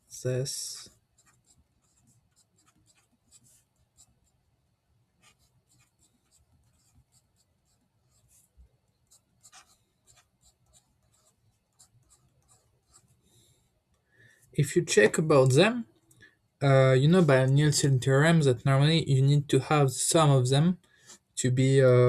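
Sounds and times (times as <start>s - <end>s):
pen scratching on paper: 0.6s - 4.5s, 5.1s - 13.2s.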